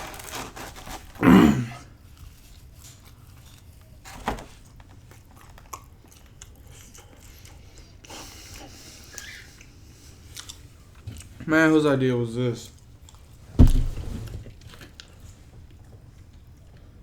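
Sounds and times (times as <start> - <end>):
person chewing food: 4.7 - 11.4, 12.7 - 13.5.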